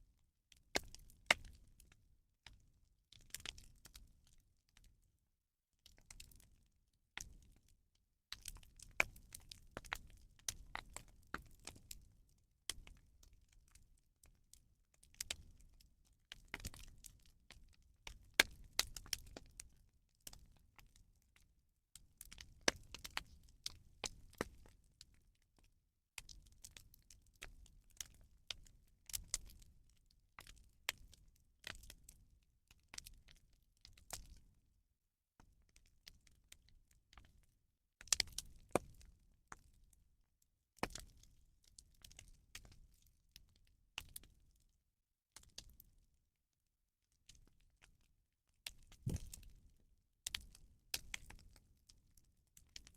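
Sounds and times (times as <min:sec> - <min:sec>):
bonfire crackling and popping: 0:49.0 - 0:49.5.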